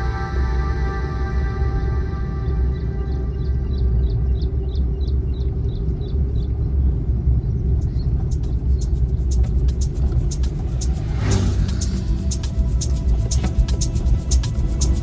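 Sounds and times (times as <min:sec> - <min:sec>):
vehicle engine and road rumble: 0:00.0 - 0:15.0
sharp ticks: 0:07.8 - 0:15.0.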